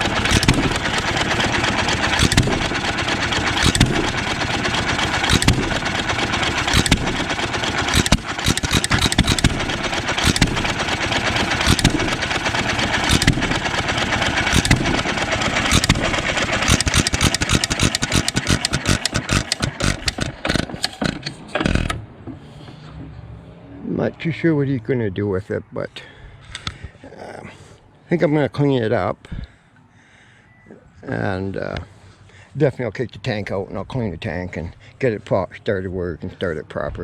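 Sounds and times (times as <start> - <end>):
stationary engine firing: 0.0 - 22.0.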